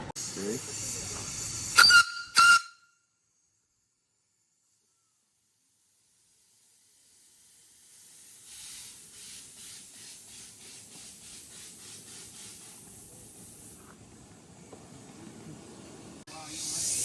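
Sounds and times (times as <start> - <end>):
steam locomotive chuffing: 0.0 - 2.7.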